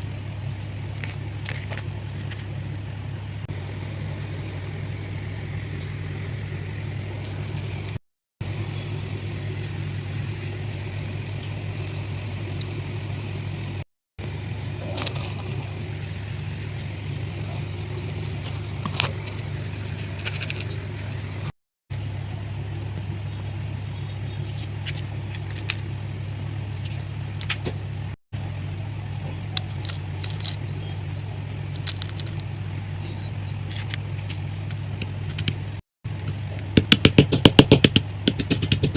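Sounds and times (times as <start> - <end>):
chalk crust crumbling: 0.0 - 3.0, 23.5 - 27.2
steady low hum: 0.0 - 38.9.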